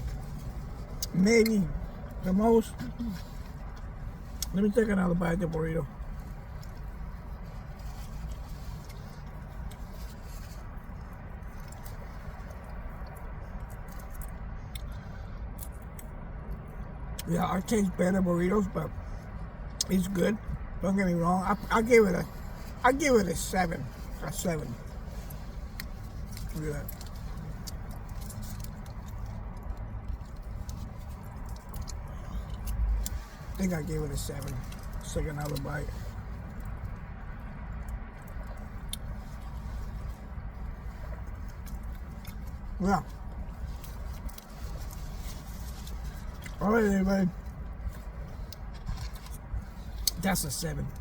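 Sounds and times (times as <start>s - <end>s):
steady low rumble: 0.0s - 51.0s
person chewing food: 6.0s - 16.9s, 24.9s - 33.5s, 34.4s - 46.6s.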